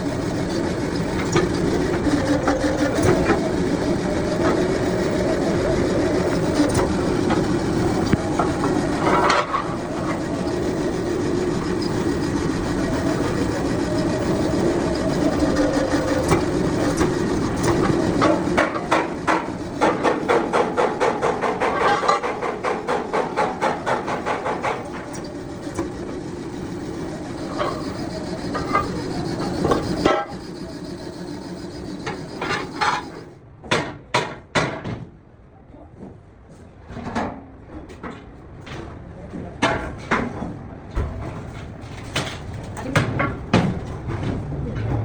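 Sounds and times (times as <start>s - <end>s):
clicks: 0.0s - 33.3s
machine running with scraping: 0.0s - 33.4s.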